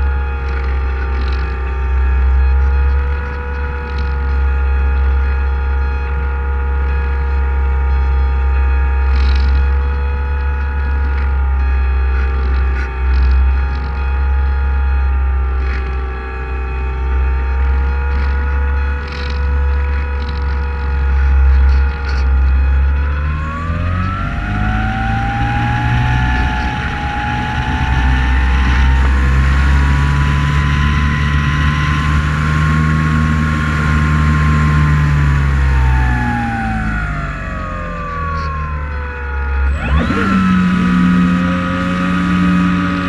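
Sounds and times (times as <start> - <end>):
drone motors whining: 0.0 - 43.0
loud low rumble: 0.0 - 43.0.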